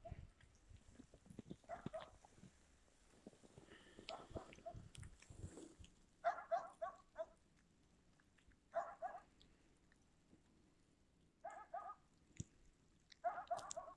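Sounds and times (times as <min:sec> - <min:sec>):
dog barking: 0:01.7 - 0:02.2, 0:04.1 - 0:04.8, 0:06.2 - 0:07.4, 0:08.7 - 0:09.3, 0:11.4 - 0:12.1, 0:13.2 - 0:13.9.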